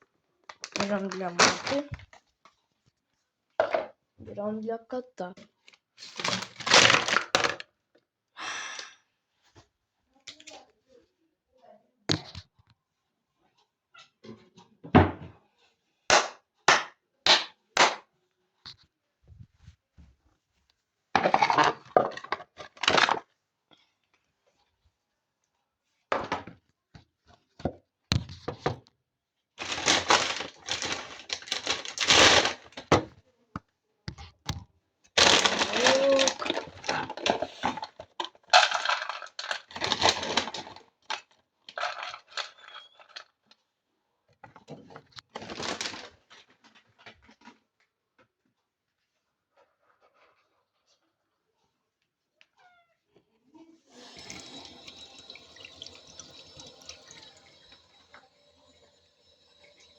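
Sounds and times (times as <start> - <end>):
packaging rustling: 0.5 - 2.2, 6.0 - 7.6, 29.6 - 33.1, 35.2 - 43.2, 45.3 - 46.5
dry food and bowls clattering: 21.2 - 23.3, 35.2 - 43.4.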